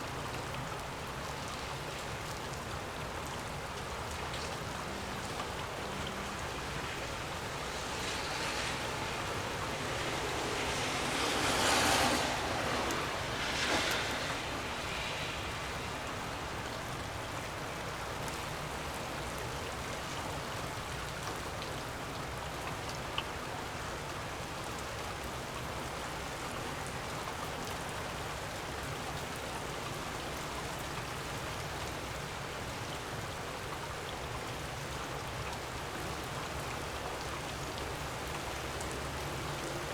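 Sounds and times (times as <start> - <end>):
gusty wind: 5.6 - 17.8.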